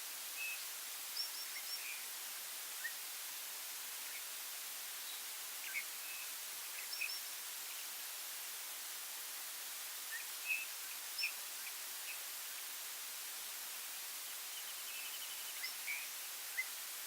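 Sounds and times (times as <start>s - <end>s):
steady high hiss: 0.0s - 17.0s
small birds chirping: 0.4s - 2.1s, 5.0s - 7.9s, 10.1s - 12.6s, 14.3s - 16.8s.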